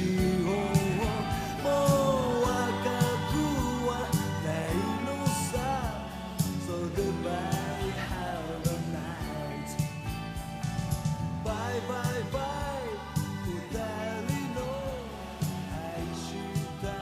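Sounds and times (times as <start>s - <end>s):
rock song with singing: 0.0s - 17.0s.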